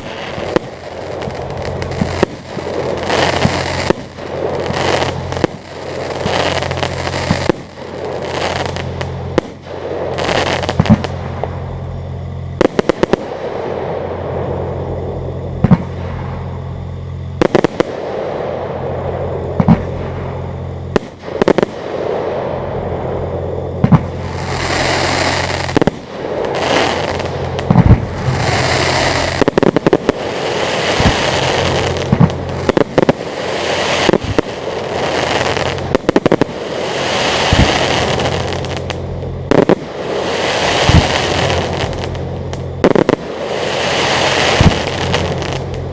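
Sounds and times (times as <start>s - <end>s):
fireworks crackling: 0.0s - 45.9s
steady low hum: 0.0s - 45.9s
firework shells bursting: 23.8s - 45.9s.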